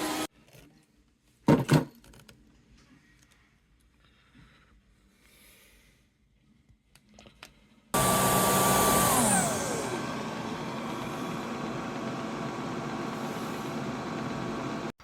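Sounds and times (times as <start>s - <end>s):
floor vacuum motor whining: 0.0s - 0.3s, 8.0s - 15.0s.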